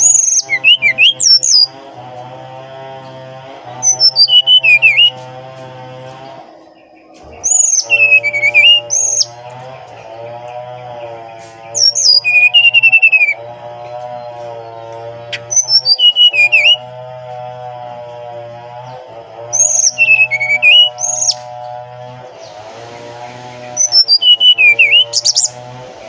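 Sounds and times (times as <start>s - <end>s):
bird whistling song: 0.0s - 1.7s, 3.8s - 5.2s, 6.8s - 9.4s, 11.7s - 13.4s, 15.3s - 16.9s, 19.5s - 21.4s, 23.7s - 25.6s.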